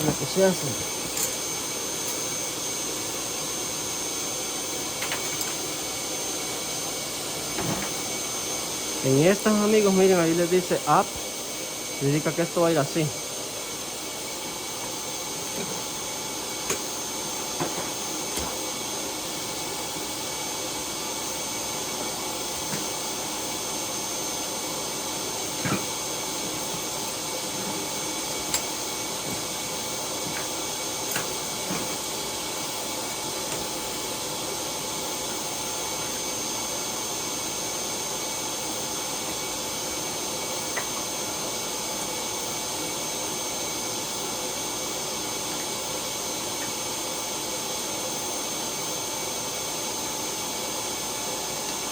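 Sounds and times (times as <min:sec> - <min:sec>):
machine whirring hum: 0:00.0 - 0:51.9
metal parts clinking: 0:01.1 - 0:01.4.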